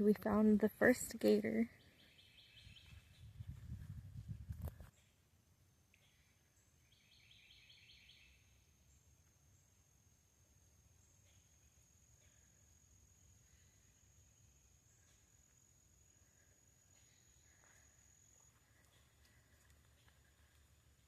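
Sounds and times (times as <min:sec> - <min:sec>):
high-pitched insect trill: 0:06.0 - 0:21.0.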